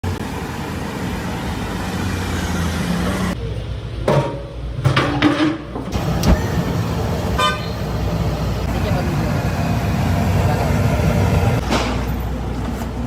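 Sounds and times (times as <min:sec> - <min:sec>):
road traffic rumble: 0:00.0 - 0:04.0, 0:05.8 - 0:13.0
vehicle engine running: 0:06.0 - 0:11.6.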